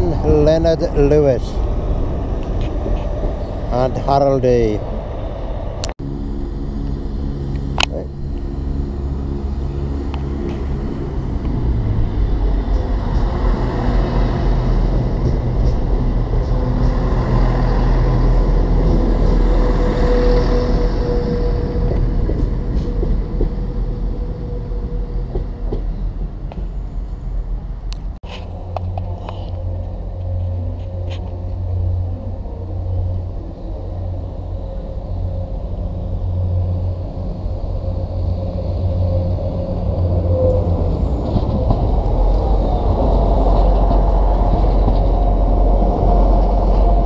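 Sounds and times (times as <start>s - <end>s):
diesel train engine hum: 0.0s - 47.0s
rumble of wheels on rail: 0.0s - 47.0s
train wheel squeal: 12.5s - 27.6s, 28.3s - 47.0s.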